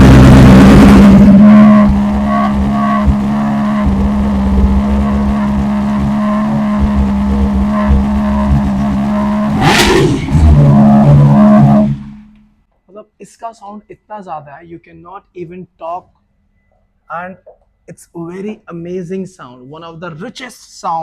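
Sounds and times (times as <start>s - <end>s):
motorcycle engine idling and revving: 0.0s - 12.4s.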